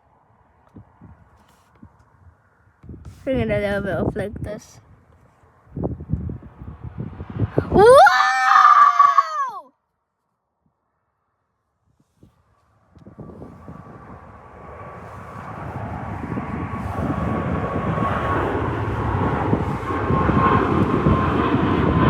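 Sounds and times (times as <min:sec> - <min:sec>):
jet airliner taking off: 0:13.2 - 0:22.0.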